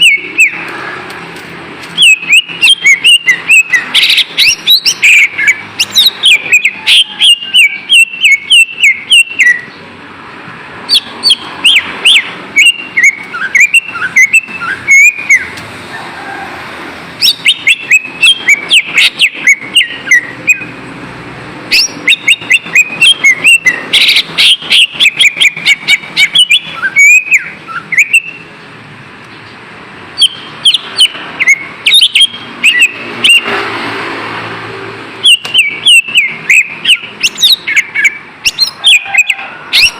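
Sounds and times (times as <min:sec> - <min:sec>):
bird chirping and whistling: 0:00.0 - 0:00.7, 0:02.0 - 0:09.8, 0:10.9 - 0:15.6, 0:17.2 - 0:20.8, 0:21.7 - 0:28.5, 0:30.2 - 0:33.6, 0:35.2 - 0:39.9.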